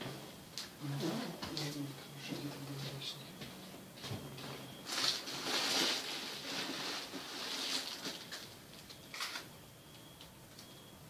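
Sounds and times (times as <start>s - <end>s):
rustling handling noise: 4.0s - 9.5s.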